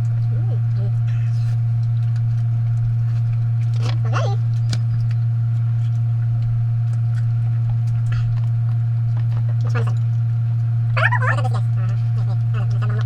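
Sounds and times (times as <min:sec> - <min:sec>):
loud low hum: 0:00.0 - 0:13.0.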